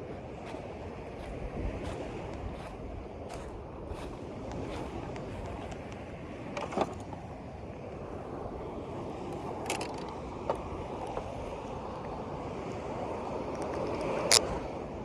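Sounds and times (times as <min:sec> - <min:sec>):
water: 0:00.0 - 0:15.0
wind: 0:00.0 - 0:15.0
clicks of handled gear: 0:09.6 - 0:10.2, 0:13.5 - 0:14.5.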